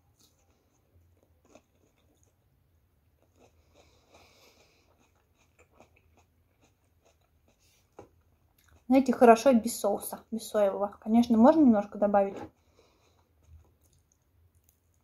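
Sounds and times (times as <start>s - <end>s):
crunchy chewing: 0.0s - 8.9s, 12.6s - 15.0s.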